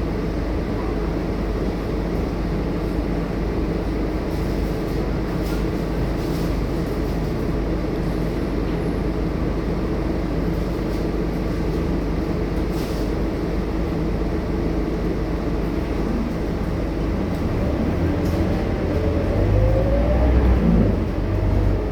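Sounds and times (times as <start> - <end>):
bus diesel engine drone: 0.0 - 21.9
road rumble: 13.3 - 21.9.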